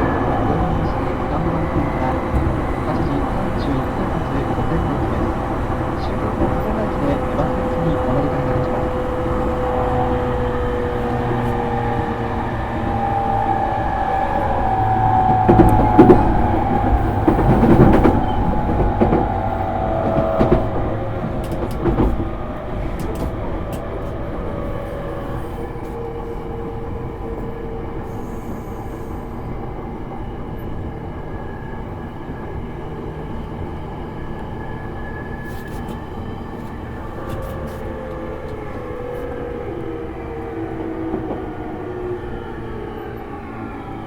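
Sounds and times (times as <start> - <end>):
train motor whine: 0.0 - 22.3
wheels clacking over rail joints: 15.0 - 24.2.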